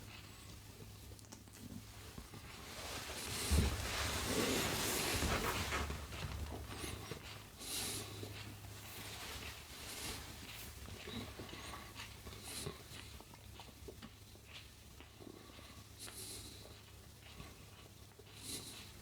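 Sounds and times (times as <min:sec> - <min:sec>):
person chewing: 0:00.9 - 0:01.9.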